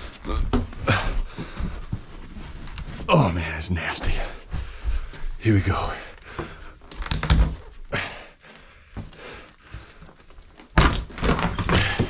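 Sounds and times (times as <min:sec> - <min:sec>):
thuds and knocks: 0:10.7 - 0:12.0.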